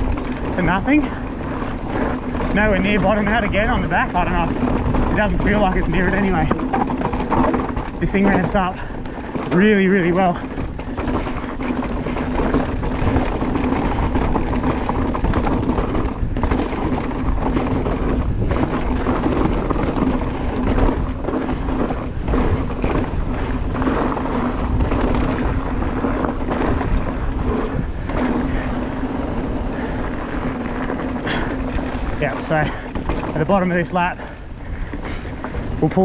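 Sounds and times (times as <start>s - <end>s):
bike suspension knocks and rattles: 0.0s - 36.0s
tyre rumble on dirt: 0.0s - 36.0s
wind buffeting microphone: 0.0s - 36.0s.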